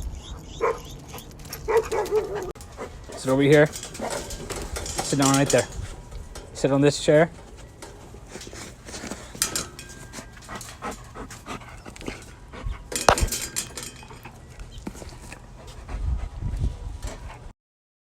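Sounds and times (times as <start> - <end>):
dog panting: 10.2 - 13.1, 15.4 - 17.5.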